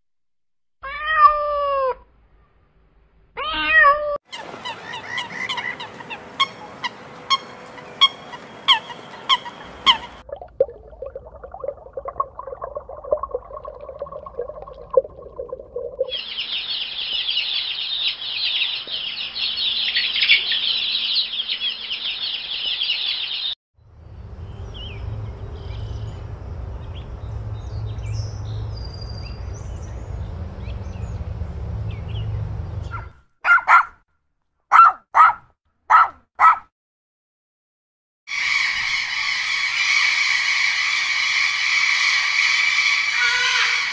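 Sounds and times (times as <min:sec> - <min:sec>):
chicks cheeping: 0:16.1 - 0:23.6.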